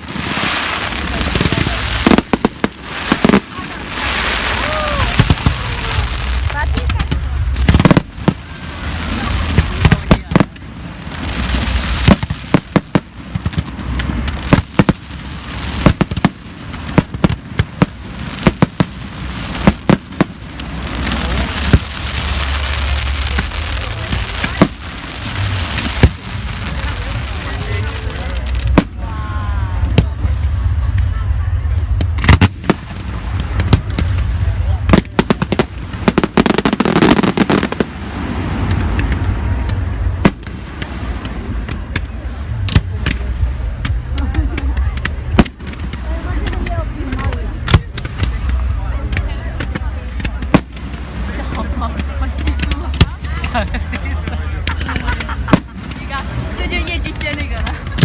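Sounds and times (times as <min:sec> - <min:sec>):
fireworks bangs: 0:00.0 - 0:58.0
fireworks hiss: 0:00.0 - 0:58.0.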